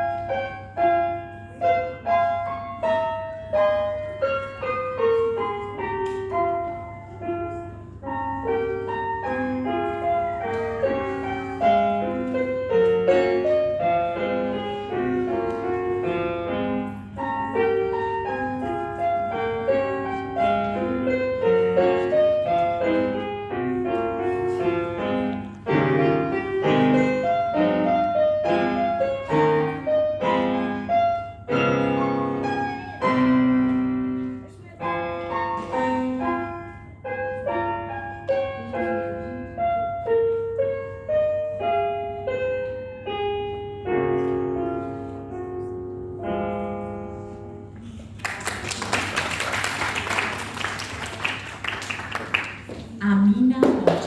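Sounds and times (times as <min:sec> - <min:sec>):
solo piano: 0:00.0 - 0:53.0.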